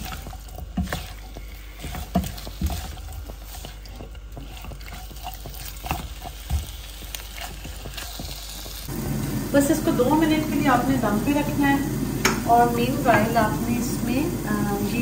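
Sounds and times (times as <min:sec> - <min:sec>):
spatula knocking and scraping pan: 0:00.0 - 0:08.9.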